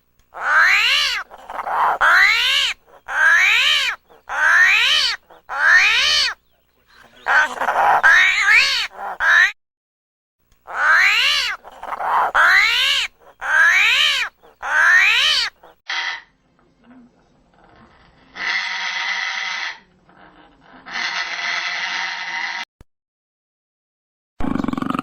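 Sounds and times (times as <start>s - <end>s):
animal harsh calls: 0.3s - 9.6s, 10.7s - 15.8s, 18.2s - 19.9s, 20.7s - 22.6s
hoarse rasping sound: 0.4s - 6.4s, 7.0s - 9.5s.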